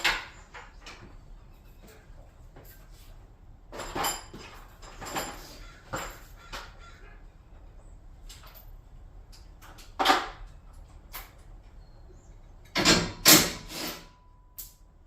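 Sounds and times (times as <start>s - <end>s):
garage door hardware knocking: 12.7s - 13.6s.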